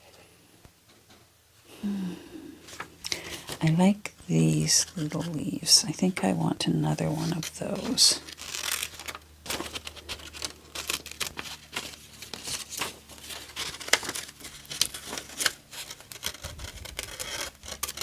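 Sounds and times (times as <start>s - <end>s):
paper rustling and crinkling: 2.7s - 5.4s, 6.9s - 18.0s.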